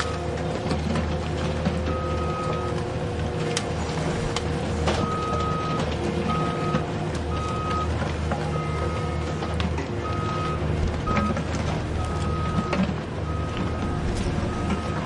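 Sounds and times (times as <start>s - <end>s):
reversing beeper: 1.9s - 2.8s, 5.0s - 9.4s, 10.0s - 15.0s.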